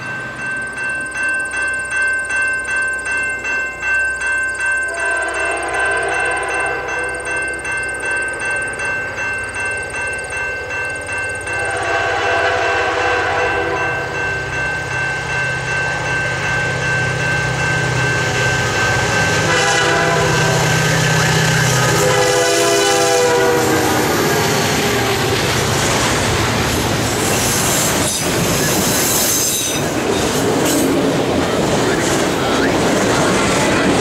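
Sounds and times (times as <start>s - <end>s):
level-crossing bell ringing: 0.0s - 34.0s
train horn: 4.9s - 7.1s, 11.6s - 14.2s, 19.3s - 25.4s
diesel locomotive rumble: 10.6s - 34.0s.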